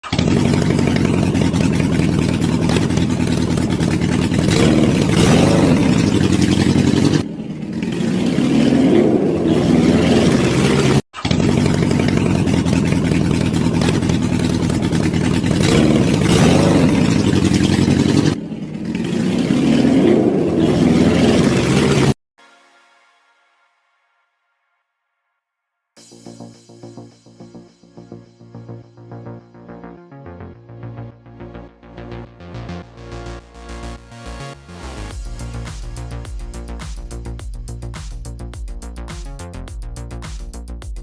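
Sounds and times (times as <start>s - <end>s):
motorcycle engine revving: 0.0s - 22.2s.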